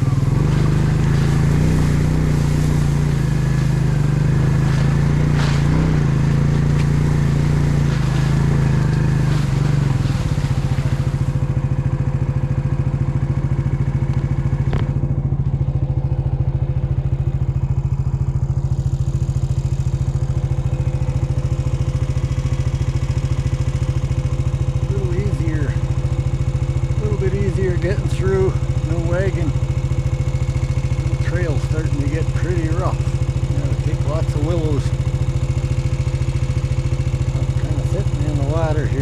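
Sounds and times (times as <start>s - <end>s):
atv engine running: 0.0s - 39.0s
engine clatter: 0.0s - 39.0s.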